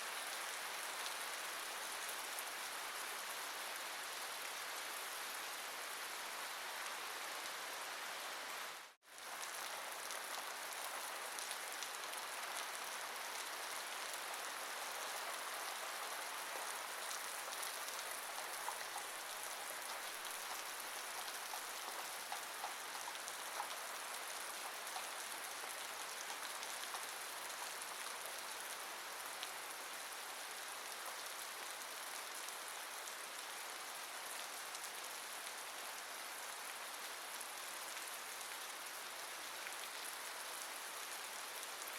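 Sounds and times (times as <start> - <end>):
steady rain hiss: 0.0 - 41.9
raindrops ticking: 19.8 - 27.1.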